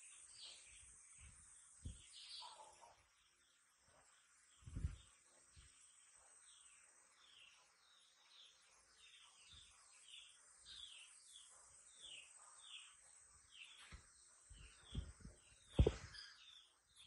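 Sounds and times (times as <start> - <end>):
bird chirping: 0.0 - 17.0
low thumps: 14.8 - 16.2
sharp knock: 15.8 - 16.1.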